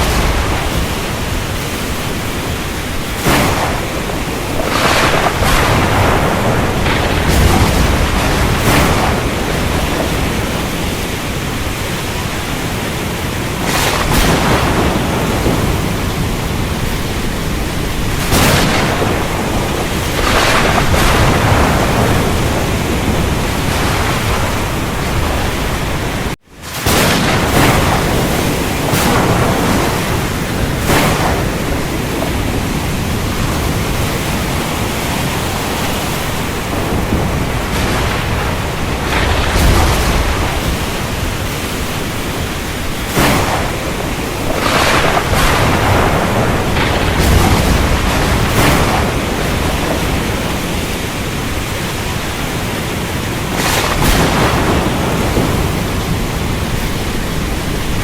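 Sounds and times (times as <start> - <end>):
rolling thunder rumbles: 0.0 - 58.0
steady rain: 0.0 - 58.0
thunder cracks: 0.0 - 58.0.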